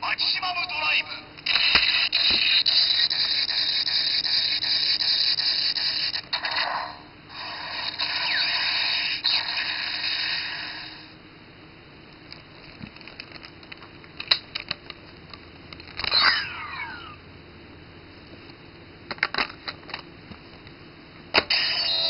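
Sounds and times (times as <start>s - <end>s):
toy sword electronic sound effects: 1.5s - 11.0s, 16.0s - 17.2s, 21.4s - 22.0s.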